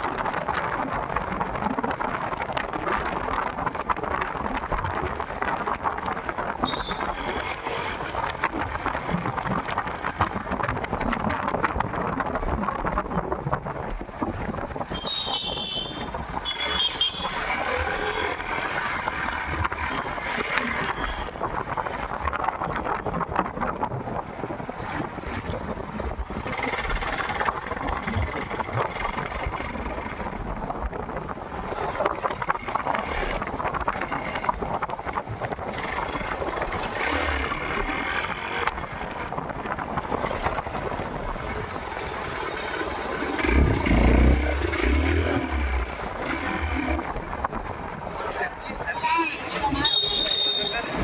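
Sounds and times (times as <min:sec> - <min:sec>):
wind buffeting microphone: 0:00.0 - 0:51.0
motorcycle engine running: 0:41.4 - 0:48.2.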